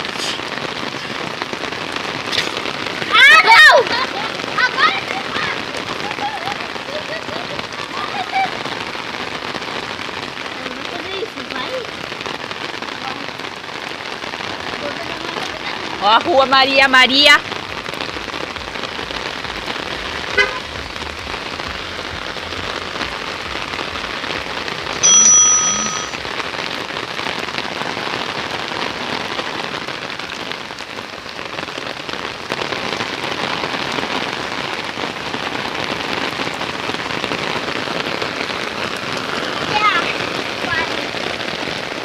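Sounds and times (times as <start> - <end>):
rain falling on surfaces: 0.0 - 42.0
short high tone: 25.0 - 26.2.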